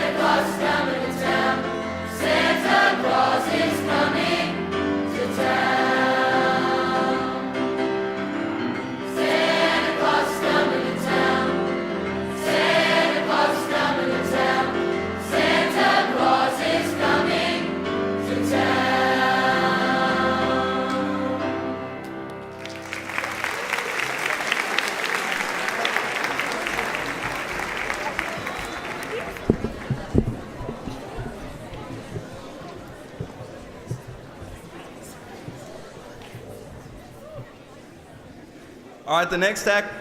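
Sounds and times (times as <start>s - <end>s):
choir singing sustained notes: 0.0s - 22.2s.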